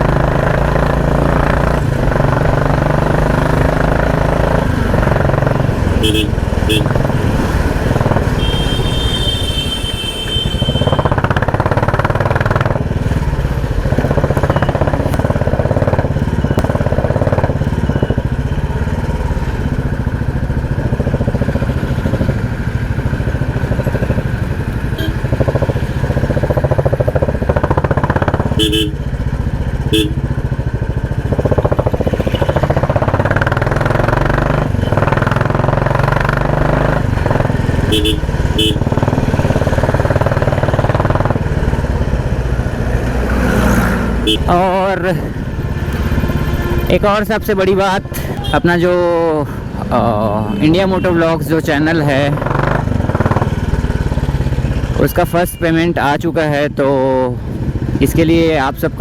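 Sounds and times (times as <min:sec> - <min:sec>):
motorcycle engine running: 0:00.0 - 0:59.0
short horn beeps: 0:06.0 - 0:06.9, 0:24.9 - 0:25.2, 0:28.6 - 0:29.0, 0:29.9 - 0:30.2, 0:37.9 - 0:38.9, 0:44.2 - 0:44.6.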